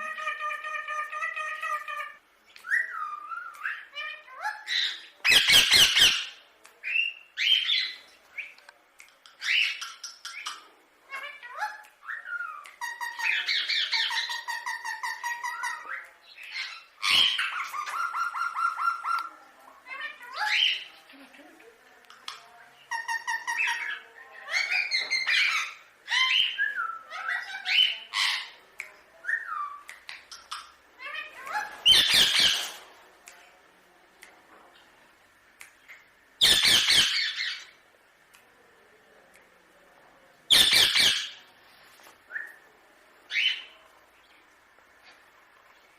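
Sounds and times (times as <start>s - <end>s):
parakeet chattering: 29.7s - 32.8s, 36.4s - 37.8s, 40.5s - 41.4s
parakeet harsh squawk: 31.0s - 32.8s, 36.4s - 37.7s, 40.5s - 41.4s.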